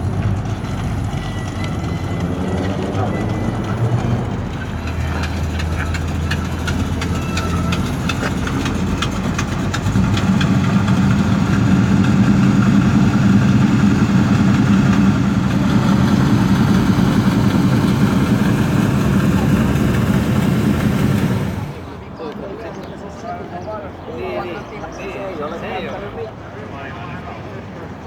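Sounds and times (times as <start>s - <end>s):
car engine idling: 0.0s - 22.2s.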